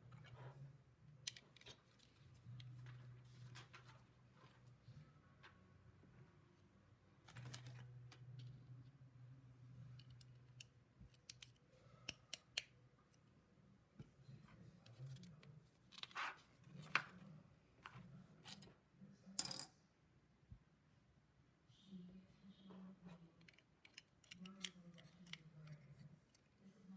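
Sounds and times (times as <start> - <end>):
plastic building bricks clicking: 23.4 - 25.8.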